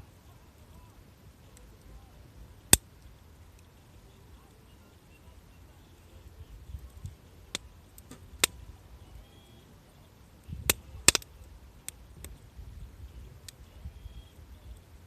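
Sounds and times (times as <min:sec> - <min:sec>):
campfire crackling: 0:00.0 - 0:15.0
sharp pops of fire: 0:06.7 - 0:08.7, 0:10.5 - 0:12.4.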